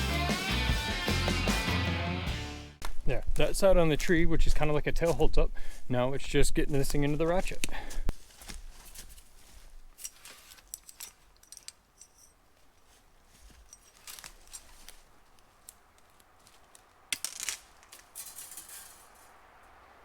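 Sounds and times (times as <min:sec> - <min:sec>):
metallic wire clicks and rattles: 0:10.0 - 0:12.9, 0:13.5 - 0:15.0.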